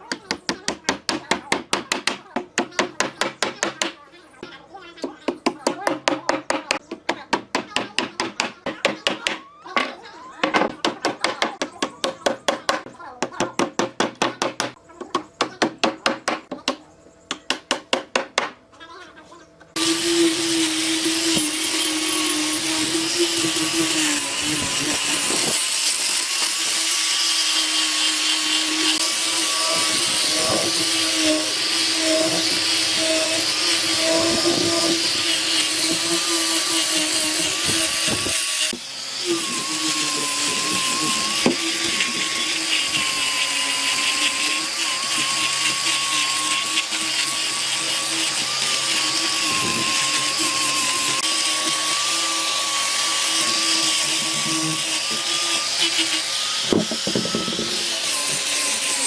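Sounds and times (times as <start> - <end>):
power tool whining on wood: 19.7 - 59.0.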